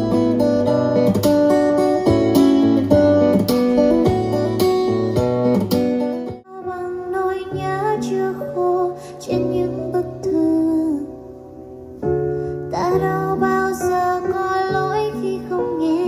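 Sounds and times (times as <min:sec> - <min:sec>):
guitar-led music on speaker: 0:00.0 - 0:10.5.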